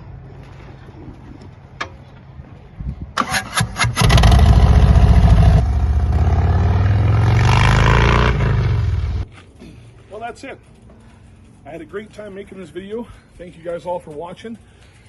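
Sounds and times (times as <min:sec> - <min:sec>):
motorcycle engine idling and revving: 0:03.2 - 0:09.3.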